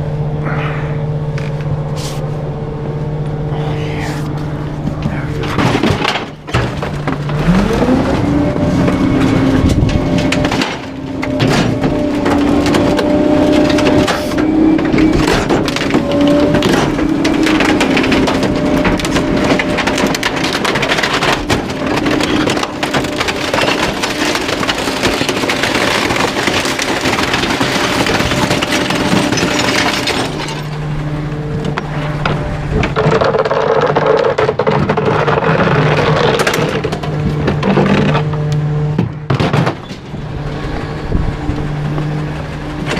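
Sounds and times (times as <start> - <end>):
machine hum: 0.0 - 42.9
wood cracking and splintering: 3.8 - 42.9.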